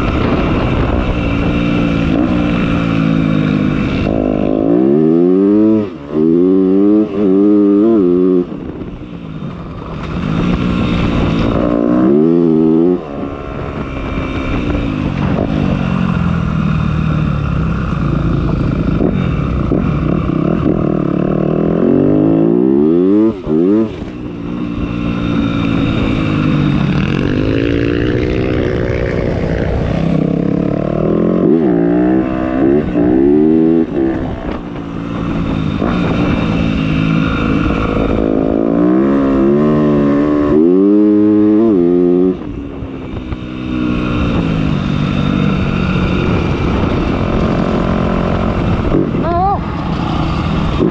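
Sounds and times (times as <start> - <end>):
motocross bike engine revving: 0.0 - 8.5, 18.8 - 42.5.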